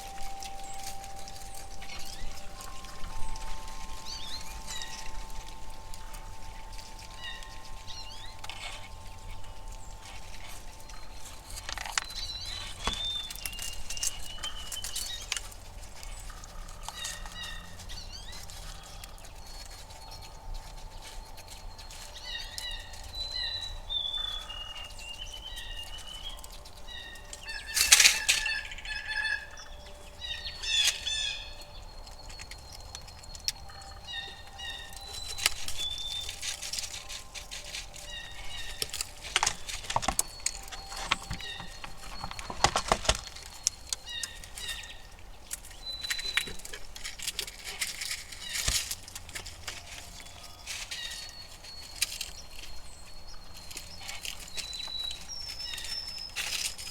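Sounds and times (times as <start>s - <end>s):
songbirds chirping: 0.0s - 56.9s.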